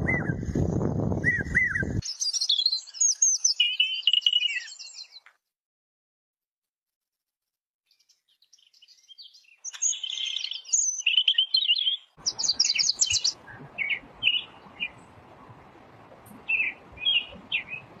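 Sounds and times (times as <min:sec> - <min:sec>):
songbird chirping and trilling: 0:01.2 - 0:05.3, 0:07.9 - 0:15.4, 0:16.0 - 0:18.0.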